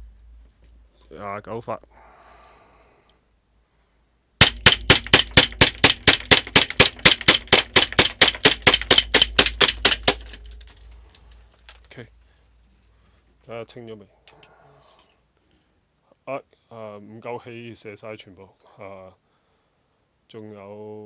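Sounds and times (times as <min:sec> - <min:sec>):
airsoft pistol shots: 0:04.4 - 0:10.8.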